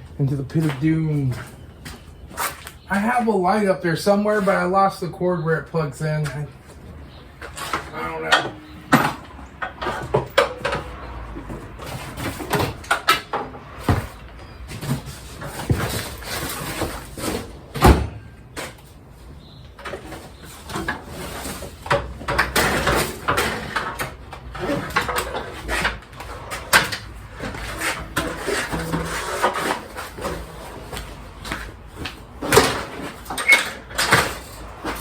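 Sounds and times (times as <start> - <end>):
ladder clattering and rattling: 7.4 - 35.0.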